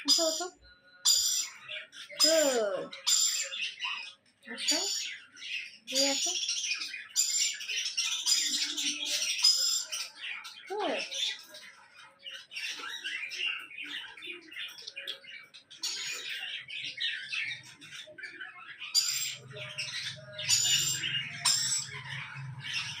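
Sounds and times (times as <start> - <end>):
baby budgerigars chirping: 0.0 - 23.0.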